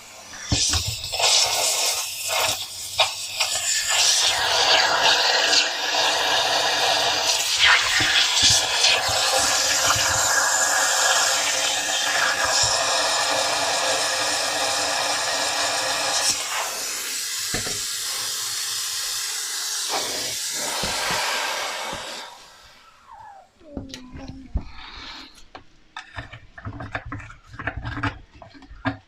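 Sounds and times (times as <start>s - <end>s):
steam cleaner hissing: 0.0s - 22.9s.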